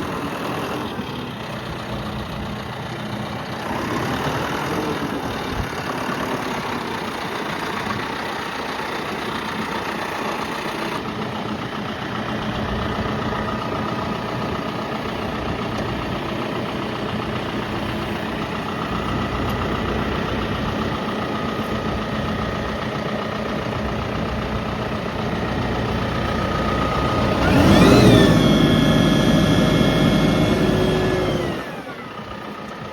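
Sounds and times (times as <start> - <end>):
tractor diesel engine idling and revving: 0.0 - 32.9.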